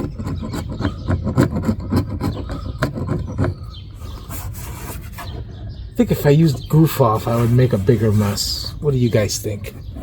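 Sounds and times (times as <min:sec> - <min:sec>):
hand scraper scraping adhesive: 0:00.0 - 0:05.5, 0:06.8 - 0:08.7.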